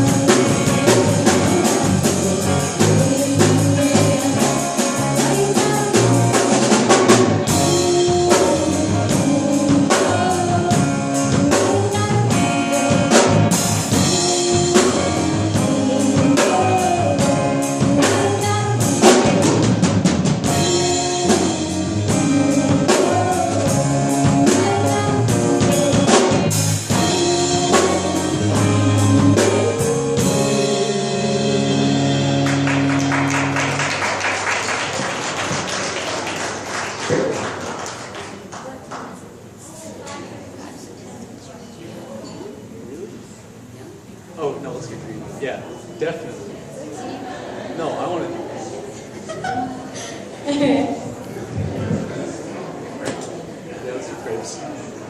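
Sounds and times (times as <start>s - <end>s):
live band playing: 0.0s - 38.5s.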